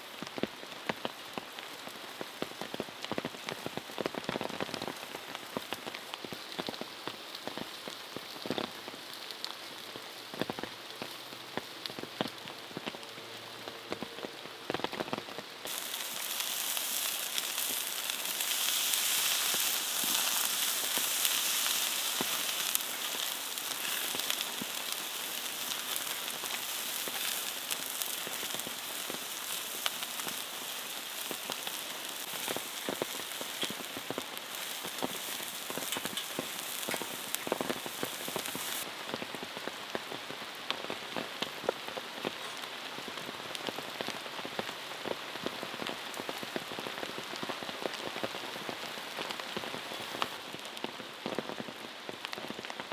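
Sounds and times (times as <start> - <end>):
steady rain falling: 0.0 - 52.9
bright steady hiss: 15.6 - 50.4.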